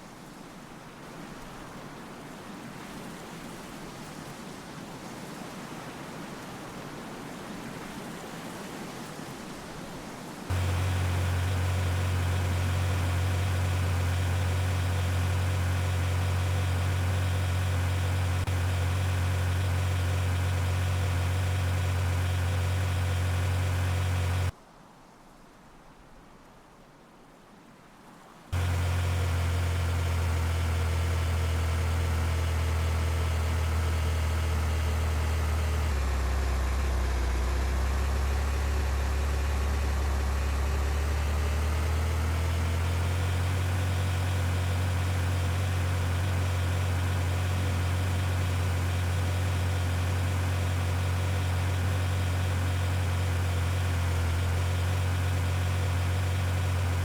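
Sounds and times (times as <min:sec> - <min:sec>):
vehicle engine humming: 0:10.5 - 0:24.5, 0:28.6 - 0:57.0.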